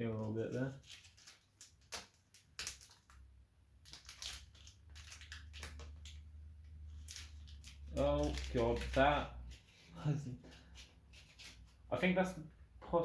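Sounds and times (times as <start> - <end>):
plastic film crinkling: 0.1 - 11.9.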